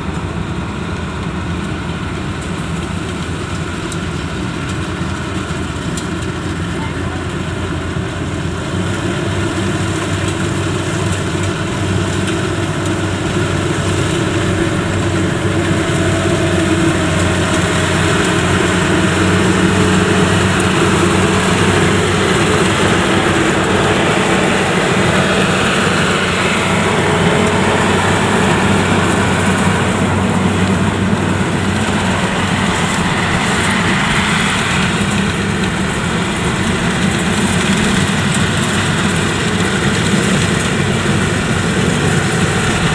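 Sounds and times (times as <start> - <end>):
combine harvester diesel drone: 0.0 - 42.9
machinery clattering: 11.1 - 42.9.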